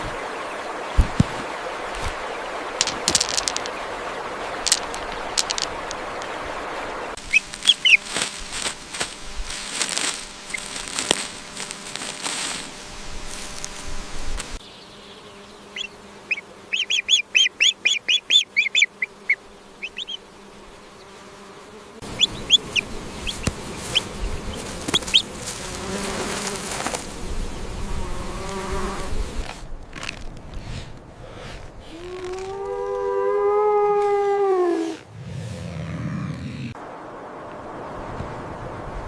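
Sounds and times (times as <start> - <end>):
rustling noise: 0.9 - 14.6, 22.0 - 27.5.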